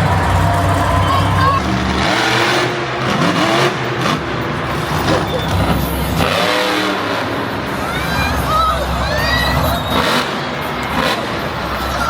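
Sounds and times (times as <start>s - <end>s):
truck engines revving loudly: 0.0s - 12.0s
voices: 0.0s - 12.0s.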